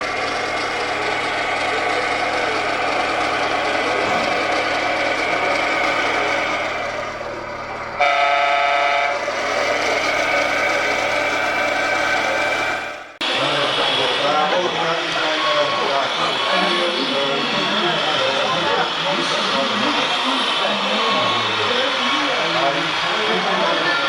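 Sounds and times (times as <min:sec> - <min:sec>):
diesel engine running: 0:00.0 - 0:24.0
horn blast: 0:08.0 - 0:09.3.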